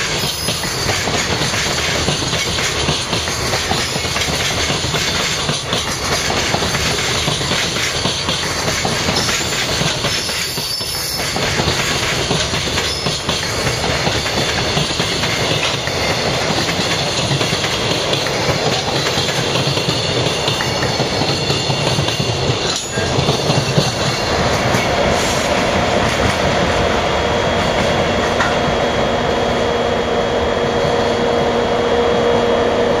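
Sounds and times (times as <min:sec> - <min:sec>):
train wheels clattering on rails: 0:00.0 - 0:29.2
wheel squeal: 0:09.2 - 0:11.4, 0:12.8 - 0:13.8.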